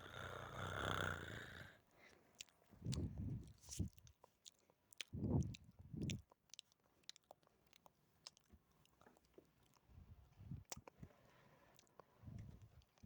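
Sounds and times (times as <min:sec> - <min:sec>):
wet lip and tongue clicks: 0:02.1 - 0:11.1, 0:11.7 - 0:13.0.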